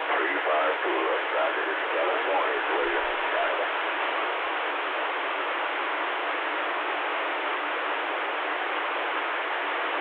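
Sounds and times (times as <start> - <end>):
radio static hiss: 0.0 - 5.8.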